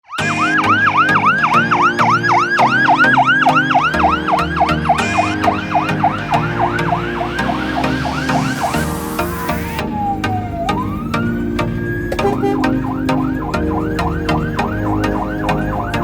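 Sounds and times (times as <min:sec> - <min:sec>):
fire engine siren yelping: 0:00.0 - 0:16.0.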